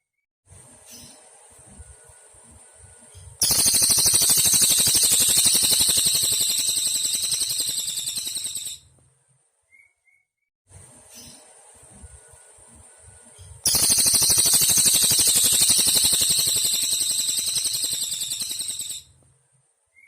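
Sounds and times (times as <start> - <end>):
bird singing high trill: 3.4 - 8.8, 13.7 - 19.1.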